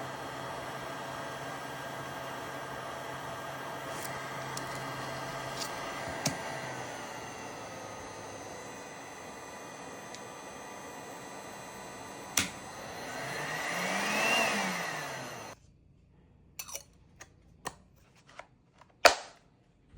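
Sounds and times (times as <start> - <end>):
heat gun fan whirring: 0.0 - 15.6.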